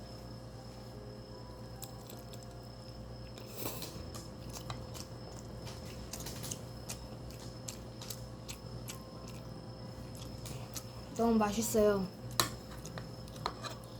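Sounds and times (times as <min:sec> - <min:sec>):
person chewing food: 0:01.8 - 0:11.1, 0:12.3 - 0:13.9.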